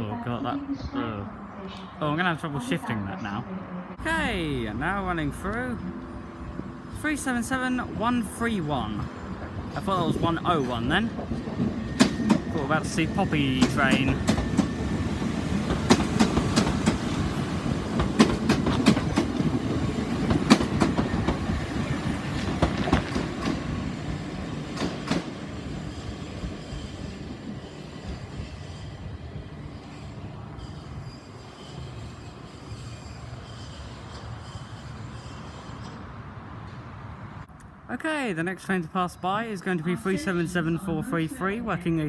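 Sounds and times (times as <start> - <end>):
train rumble: 0.4 - 38.0
train wheels clicking over track: 9.4 - 28.8.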